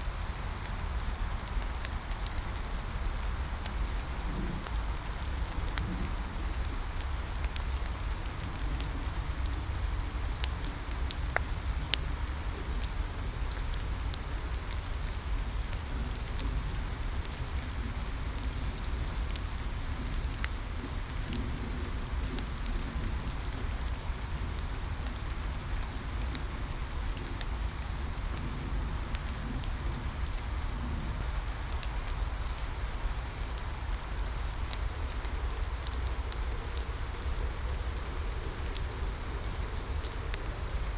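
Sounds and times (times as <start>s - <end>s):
bonfire crackling and popping: 0.0s - 40.9s
steady rain falling: 0.0s - 40.9s.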